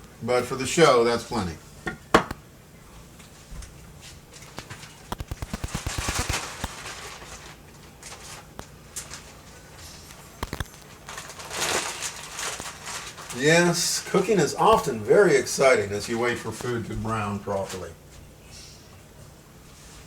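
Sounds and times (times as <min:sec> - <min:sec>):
sharp clicks: 0:05.1 - 0:06.8, 0:10.4 - 0:10.9, 0:14.7 - 0:15.0.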